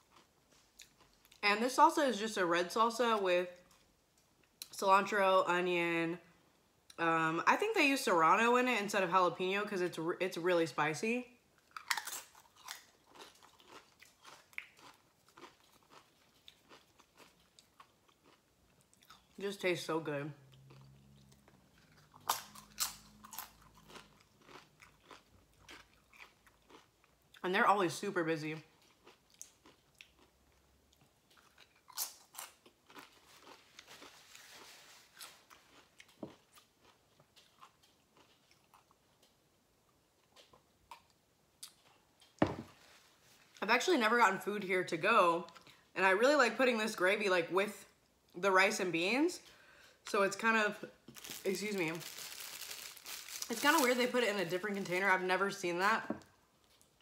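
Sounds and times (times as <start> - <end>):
tortilla chip crunching: 11.6 - 19.4, 20.5 - 27.2, 28.8 - 39.3, 51.0 - 55.0.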